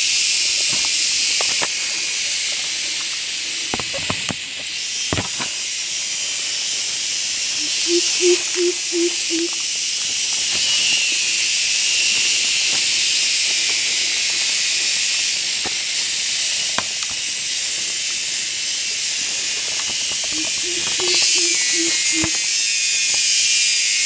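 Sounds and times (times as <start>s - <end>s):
insect chorus hiss: 0.0s - 24.0s
faint clicks: 7.7s - 9.7s.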